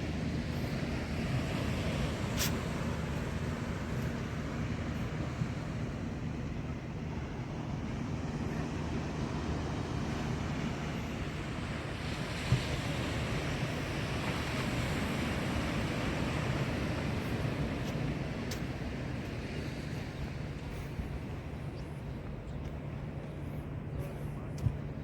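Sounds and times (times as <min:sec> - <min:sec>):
wind rumble on microphone: 0:00.0 - 0:25.0
ocean surf breaking on beach: 0:08.3 - 0:20.6.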